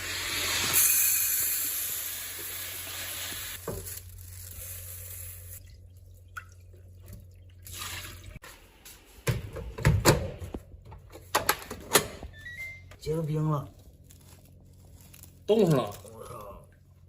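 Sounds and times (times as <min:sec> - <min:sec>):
water dripping and splashing: 0:05.6 - 0:08.4
water running into a sink: 0:05.6 - 0:08.4.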